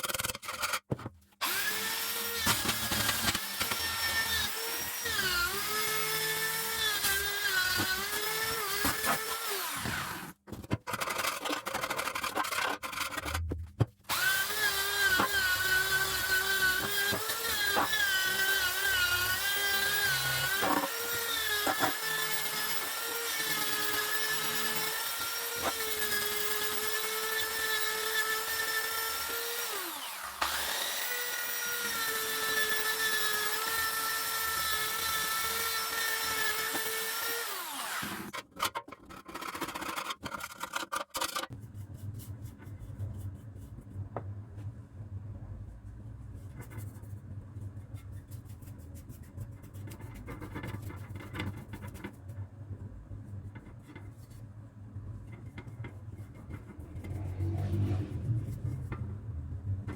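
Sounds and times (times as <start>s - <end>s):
power tool motor whining: 1.4s - 10.3s, 14.1s - 38.4s.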